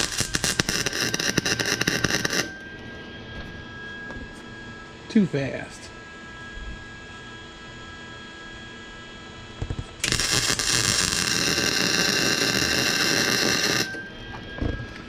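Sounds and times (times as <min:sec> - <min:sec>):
electric welding arc crackling: 0:00.0 - 0:02.5, 0:09.7 - 0:14.0.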